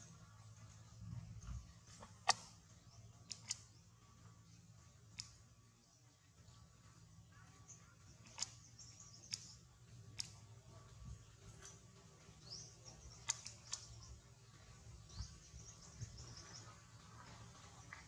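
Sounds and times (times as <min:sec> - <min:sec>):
sharp clicks: 0:02.0 - 0:02.6, 0:03.3 - 0:03.7, 0:05.1 - 0:05.4, 0:08.2 - 0:10.4, 0:13.1 - 0:14.1.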